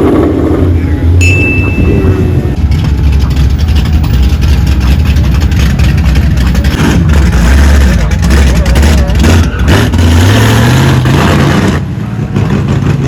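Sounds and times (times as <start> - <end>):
deep car exhaust rumble: 0.0 - 13.0.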